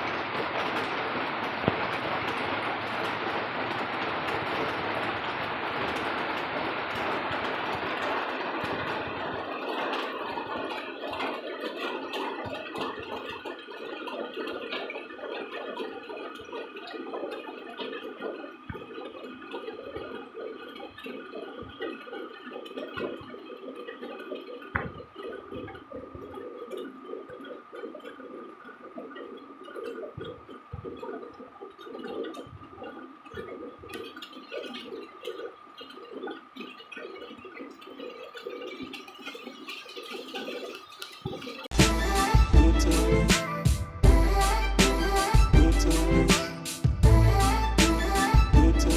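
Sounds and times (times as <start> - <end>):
rainwater running and gurgling: 0.0 - 48.9
steady high-pitched tone: 41.7 - 48.9.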